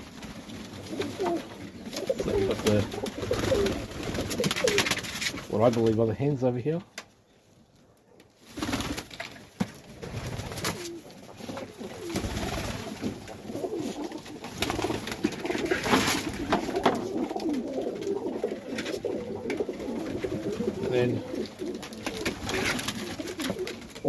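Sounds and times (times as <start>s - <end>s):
wing flutters: 0.0s - 5.5s, 8.4s - 9.4s, 10.0s - 24.0s
pigeons cooing: 0.8s - 4.9s, 10.5s - 24.0s.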